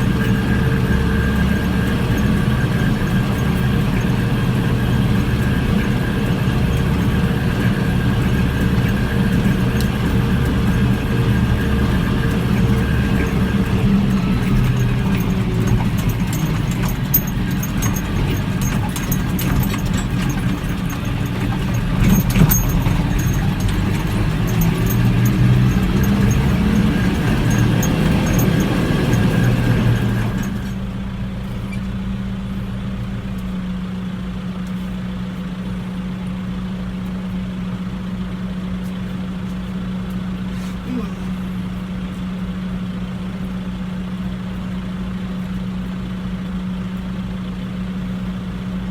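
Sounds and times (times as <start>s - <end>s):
rattling and clicking: 0.0s - 31.9s
tractor engine running: 0.0s - 48.9s.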